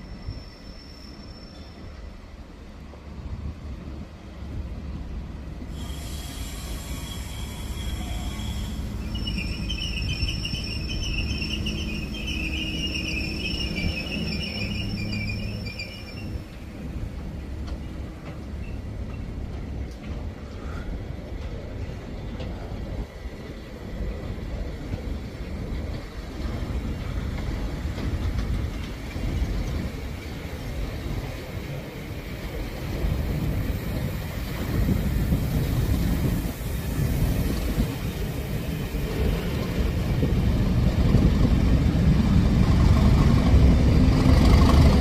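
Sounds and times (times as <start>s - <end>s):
train wheels rumbling: 0.0s - 45.0s
warbling wheel squeal: 7.1s - 16.4s.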